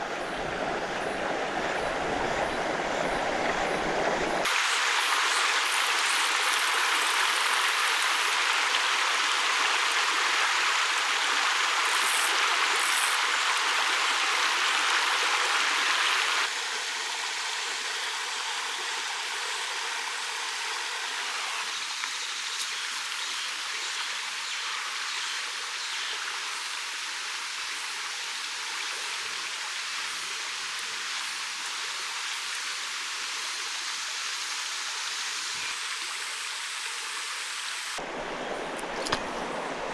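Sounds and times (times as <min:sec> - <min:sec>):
stream rushing over rocks: 0:00.0 - 0:16.6.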